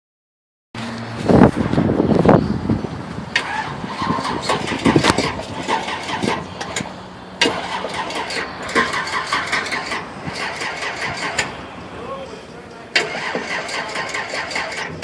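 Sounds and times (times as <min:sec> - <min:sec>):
car engine idling with loping beat: 0:04.7 - 0:15.0.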